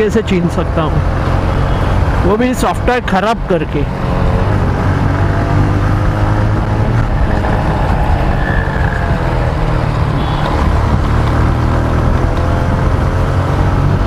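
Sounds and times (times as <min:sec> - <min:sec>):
road and wind noise: 0:00.0 - 0:14.0
motorcycle engine running: 0:03.9 - 0:14.0.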